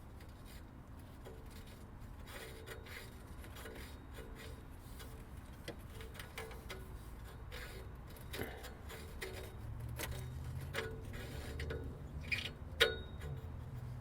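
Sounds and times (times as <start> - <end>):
threads scraping: 5.9 - 12.6
short squeaks: 8.9 - 13.4.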